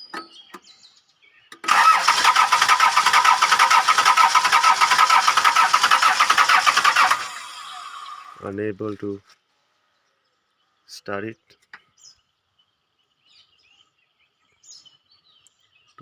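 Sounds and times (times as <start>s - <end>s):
starter motor cranking engine: 1.6s - 8.4s.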